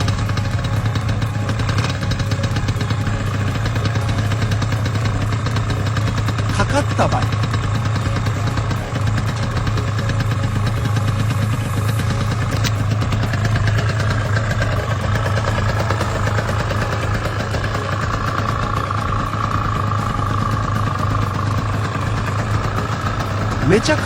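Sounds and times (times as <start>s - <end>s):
two-stroke engine running: 0.0s - 24.0s.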